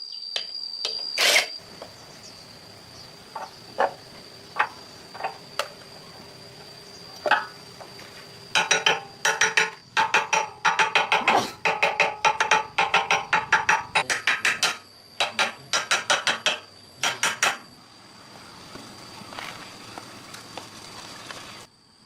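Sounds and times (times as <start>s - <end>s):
hammer striking metal: 8.6s - 17.6s.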